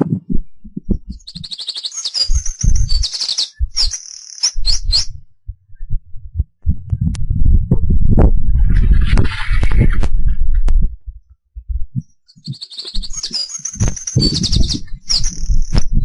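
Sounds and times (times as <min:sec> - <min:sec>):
wind buffeting microphone: 0:00.0 - 0:01.6, 0:02.2 - 0:16.0
songbird trilling: 0:01.1 - 0:05.1, 0:12.3 - 0:15.7.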